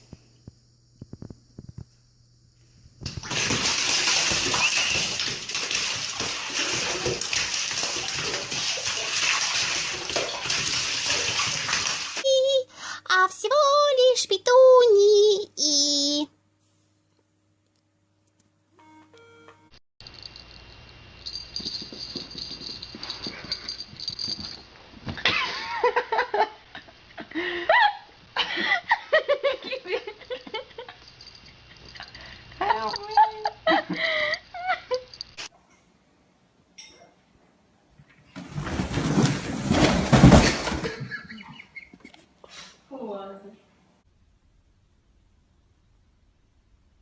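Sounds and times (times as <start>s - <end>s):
water running and splashing: 3.1s - 12.2s.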